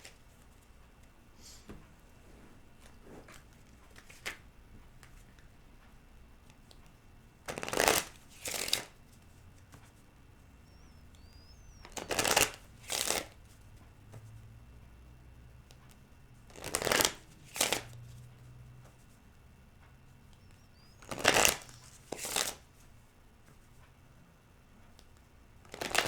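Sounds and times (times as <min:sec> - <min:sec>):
cards being shuffled by hand: 0:00.0 - 0:05.6, 0:06.4 - 0:10.1, 0:11.4 - 0:14.4, 0:15.9 - 0:19.2, 0:20.9 - 0:23.8, 0:25.0 - 0:26.0.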